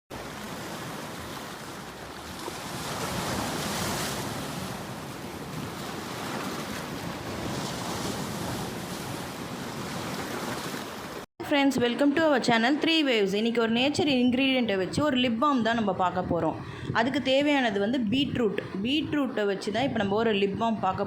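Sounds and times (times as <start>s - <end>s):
ocean waves washing in: 0.1s - 11.3s.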